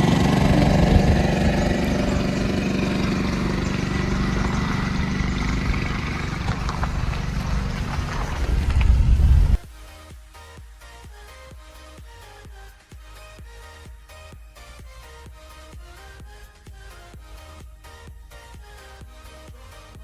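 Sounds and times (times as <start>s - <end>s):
car engine humming: 0.0s - 9.7s
road noise: 0.0s - 9.7s.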